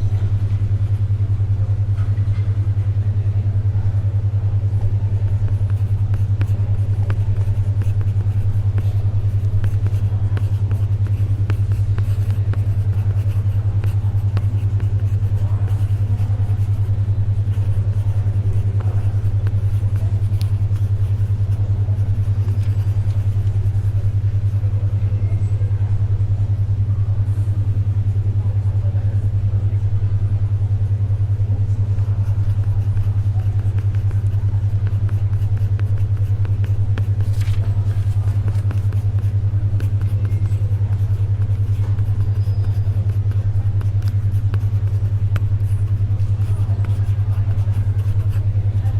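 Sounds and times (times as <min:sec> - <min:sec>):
pulsing low synthetic hum: 0:00.0 - 0:48.9
pencil writing: 0:04.8 - 0:24.6, 0:32.0 - 0:48.9
pages turning: 0:37.3 - 0:38.6.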